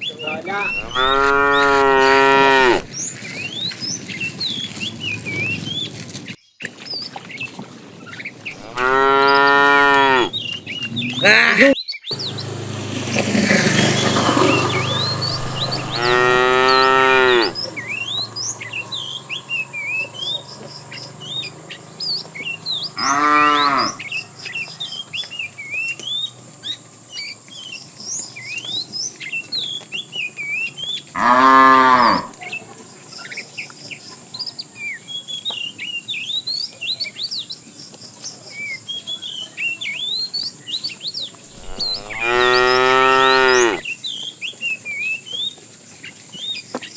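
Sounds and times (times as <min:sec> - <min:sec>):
small birds chirping: 0:00.0 - 0:46.9
cattle mooing: 0:00.6 - 0:02.9, 0:08.6 - 0:12.3, 0:14.2 - 0:24.8, 0:31.2 - 0:32.4, 0:41.6 - 0:43.8.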